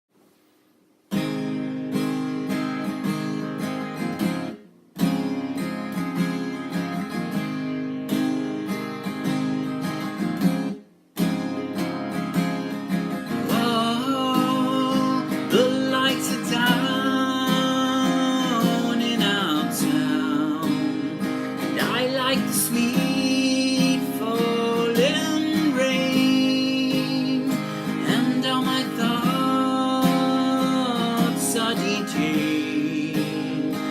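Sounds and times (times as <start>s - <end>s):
acoustic guitar strumming: 1.1s - 33.9s.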